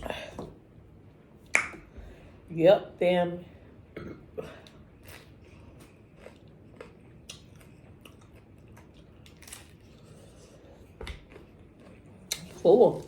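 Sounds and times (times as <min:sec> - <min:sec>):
chewing with crunches: 0:05.0 - 0:13.0.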